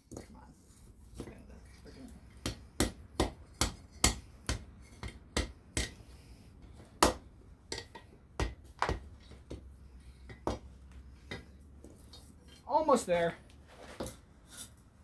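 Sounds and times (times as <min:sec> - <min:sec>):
hammer striking steel on anvil: 0:02.5 - 0:06.0.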